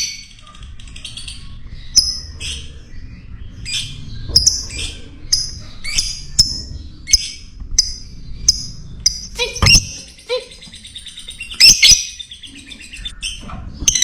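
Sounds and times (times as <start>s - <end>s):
bird squeaky chirps: 3.6s - 14.0s
bird raspy chattering: 9.1s - 13.1s.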